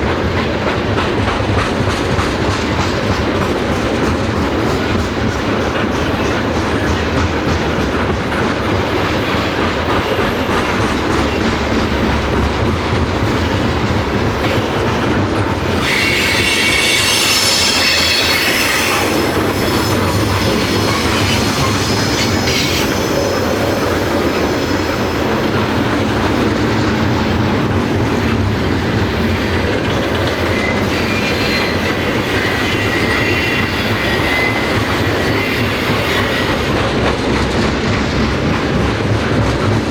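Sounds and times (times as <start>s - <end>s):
train cars rolling with clatter: 0.0s - 39.9s
high-pitched wheel squeal: 15.8s - 23.8s, 30.4s - 36.8s.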